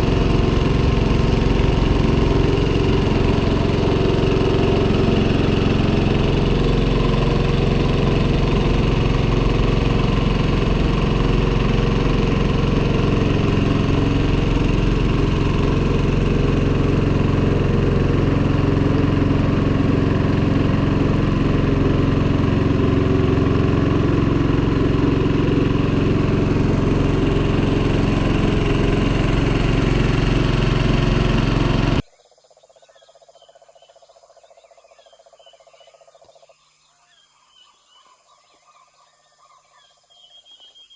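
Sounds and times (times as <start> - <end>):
outboard motor running: 0.0 - 32.1
faint outdoor background: 0.0 - 40.9.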